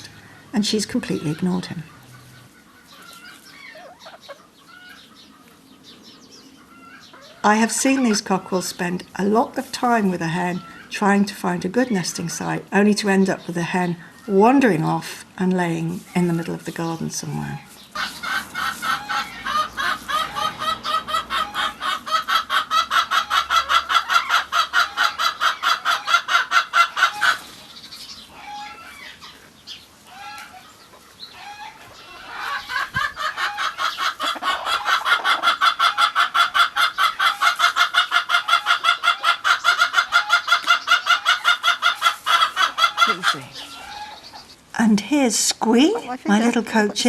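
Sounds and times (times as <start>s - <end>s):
chicken clucking: 0.9s - 5.7s, 16.8s - 44.6s.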